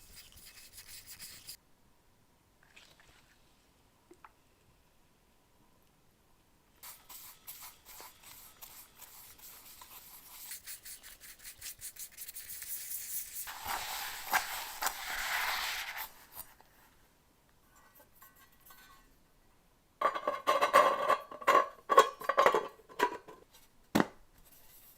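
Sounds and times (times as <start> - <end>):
hand rubbing strokes: 0.0 - 1.6, 6.8 - 16.5.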